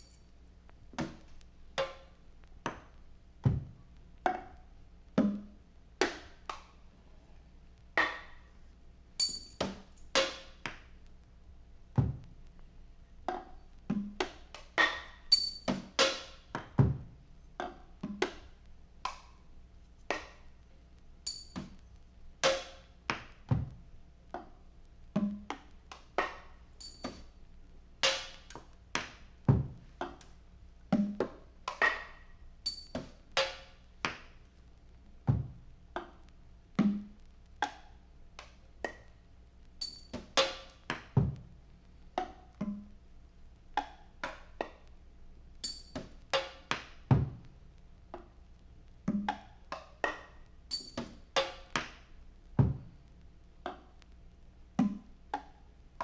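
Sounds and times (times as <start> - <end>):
faint low hum: 0.0 - 10.2.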